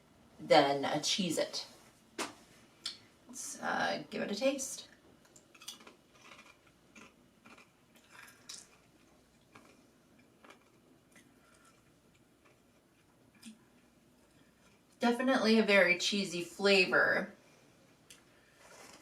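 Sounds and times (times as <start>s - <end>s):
crunching and chewing cracker: 5.2s - 15.0s.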